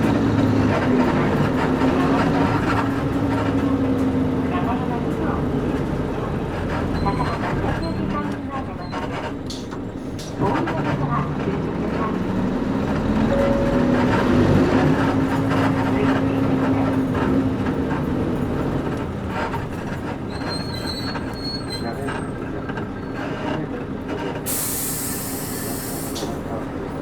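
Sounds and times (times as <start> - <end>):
bus diesel engine: 0.0 - 27.0
air brake hiss: 24.5 - 26.4.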